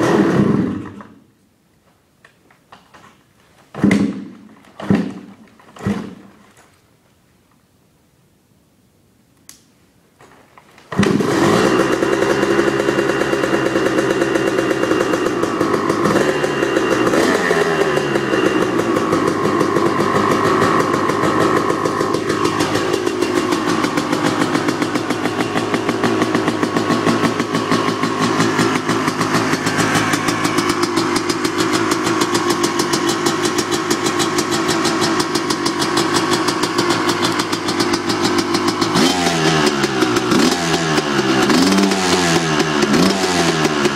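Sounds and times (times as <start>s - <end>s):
two-stroke motorcycle engine idling: 11.0s - 43.9s.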